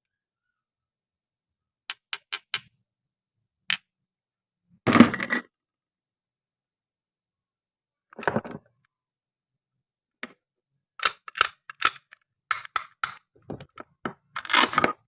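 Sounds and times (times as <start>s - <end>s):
plastic toy pieces clicking: 11.0s - 13.2s.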